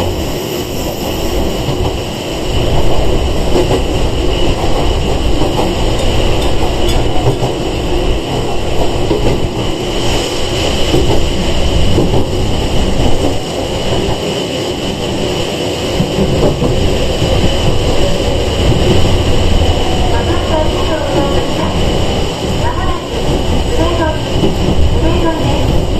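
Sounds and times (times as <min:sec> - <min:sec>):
train wheels rumbling on rails: 0:00.0 - 0:25.9.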